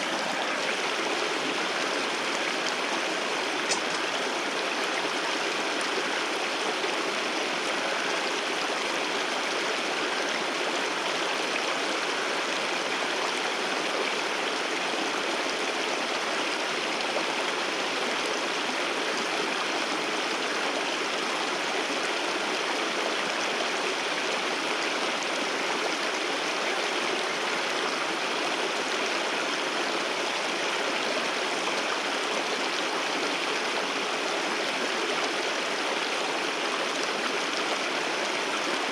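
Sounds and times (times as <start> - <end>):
waterfall roaring: 0.0 - 4.4.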